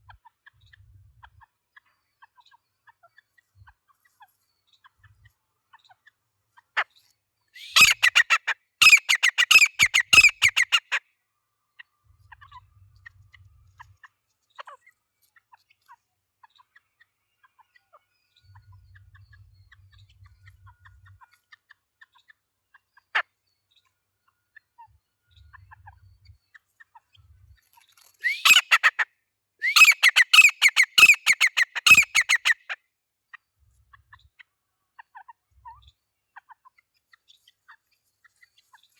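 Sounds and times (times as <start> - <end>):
bird calling rapid notes: 7.6 - 11.0, 28.2 - 29.0, 29.6 - 32.8.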